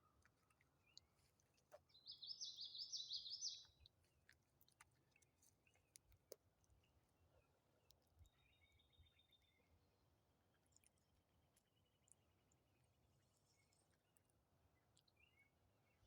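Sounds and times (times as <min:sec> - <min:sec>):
songbird singing: 0:01.8 - 0:03.9, 0:08.2 - 0:09.7, 0:14.8 - 0:16.0.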